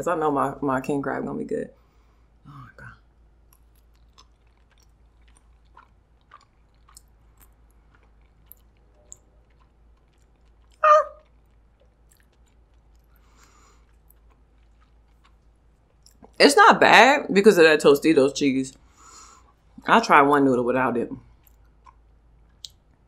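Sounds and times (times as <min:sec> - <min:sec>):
close-up chewing with mouth clicks: 0:01.8 - 0:16.4, 0:21.2 - 0:23.0.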